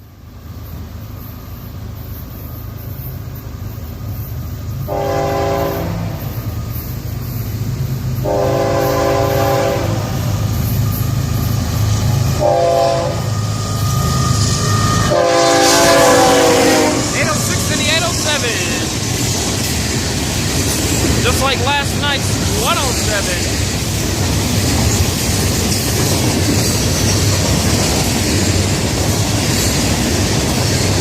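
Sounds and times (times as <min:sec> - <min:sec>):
locomotive engine rumble: 0:00.2 - 0:31.0
train horn blasts: 0:04.9 - 0:06.3, 0:08.2 - 0:10.2, 0:12.4 - 0:13.4, 0:14.8 - 0:17.3.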